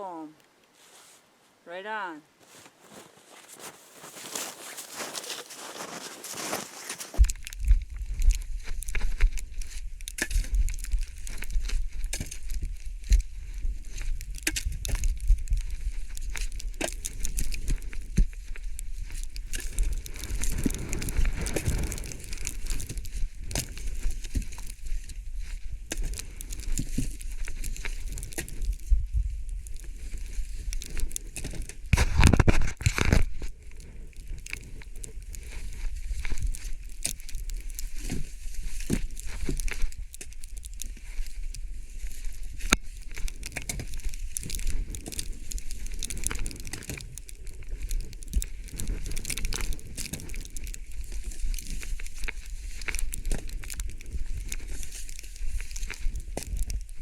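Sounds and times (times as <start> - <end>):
footsteps crunching in snow: 0.7 - 57.0
wind on microphone: 28.0 - 30.9.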